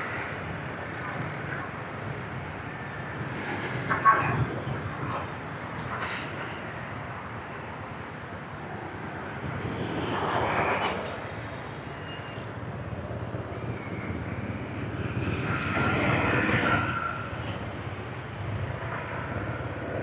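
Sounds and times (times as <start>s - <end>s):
road and wind noise: 0.0s - 20.0s.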